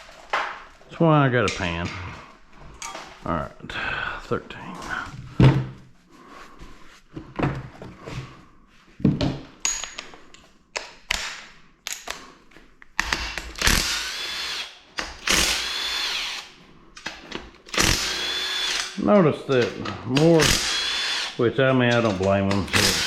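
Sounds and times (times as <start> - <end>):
tools and metal parts clinking: 9.6 - 10.4
power drill spinning: 13.2 - 16.6, 17.7 - 23.0.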